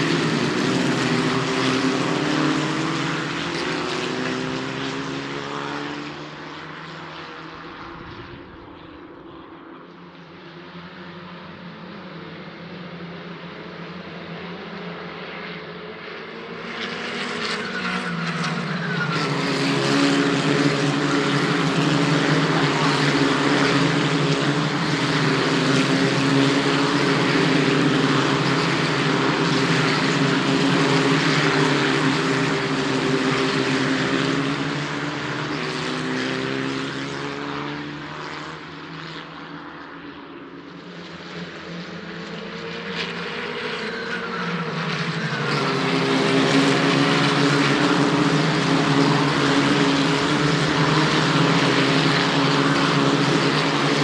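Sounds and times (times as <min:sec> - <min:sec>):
racing car engines: 0:00.0 - 0:54.0.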